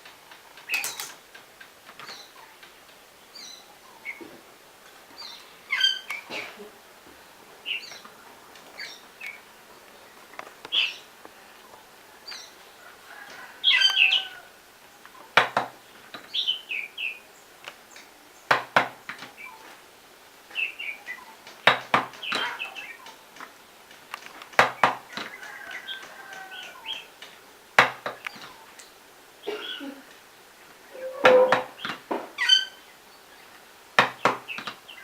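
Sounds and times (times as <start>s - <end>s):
small birds chirping: 0.0s - 35.0s
sharp knock: 31.2s - 32.3s.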